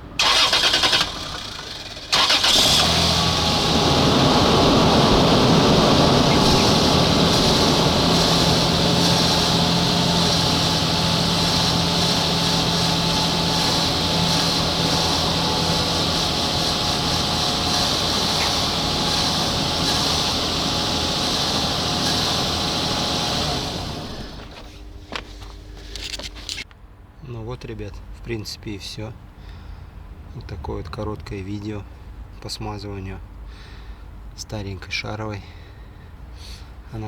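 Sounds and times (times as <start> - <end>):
mechanical running noise with hum: 2.6 - 26.6.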